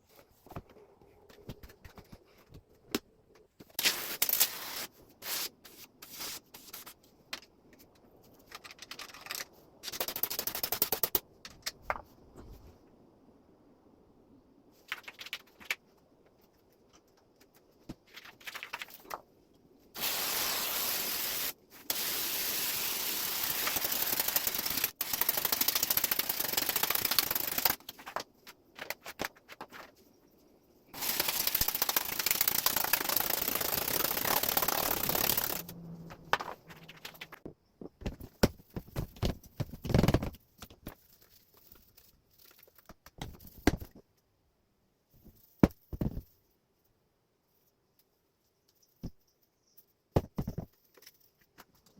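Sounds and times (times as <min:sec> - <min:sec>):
sprayer hissing: 0:20.0 - 0:27.6, 0:31.0 - 0:35.8.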